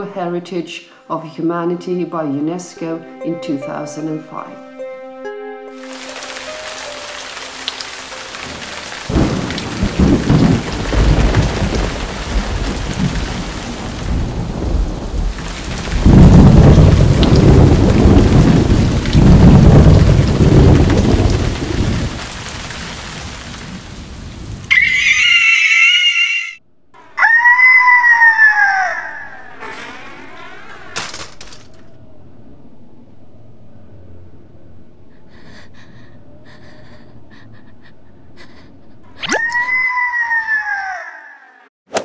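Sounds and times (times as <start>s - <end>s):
heavy rain: 5.8s - 25.6s
low thunder rolls: 5.9s - 25.1s
high wavering cry: 24.7s - 30.8s, 39.2s - 41.7s.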